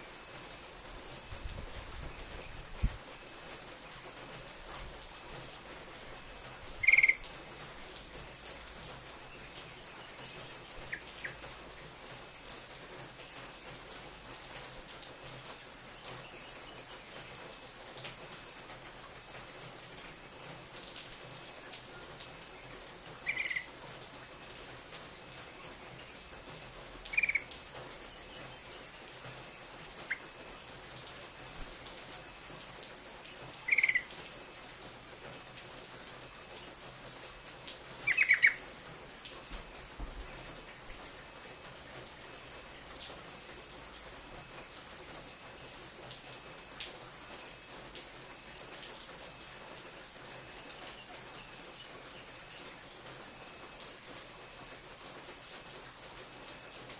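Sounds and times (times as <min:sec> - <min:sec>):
bulbul single calls: 0:06.8 - 0:07.2.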